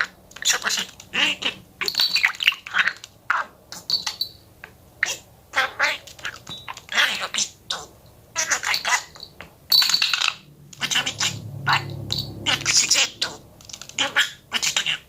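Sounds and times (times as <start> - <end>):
budgerigar chattering: 0.0 - 4.3, 5.0 - 9.2, 9.8 - 15.0
low hum: 10.4 - 14.0.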